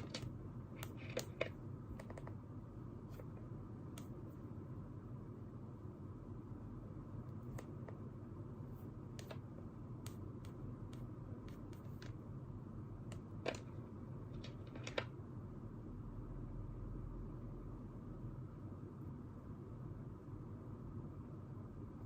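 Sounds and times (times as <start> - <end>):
small clicks and taps: 0.0 - 2.4
low room hum: 0.0 - 22.0.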